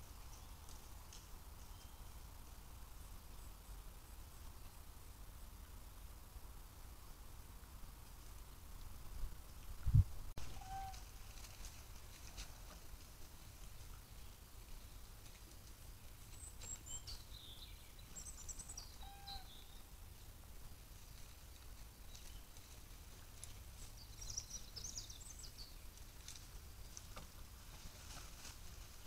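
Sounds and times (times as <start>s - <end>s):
faint songbird chirps: 0.0s - 5.1s, 13.8s - 15.3s, 16.2s - 27.2s.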